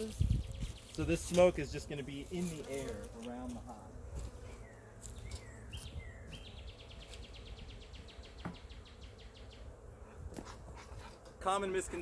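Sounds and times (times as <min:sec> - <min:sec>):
small bird chirping and trilling: 0:00.0 - 0:01.4, 0:04.5 - 0:09.7
low rumble of wind: 0:00.0 - 0:03.2, 0:03.8 - 0:12.0.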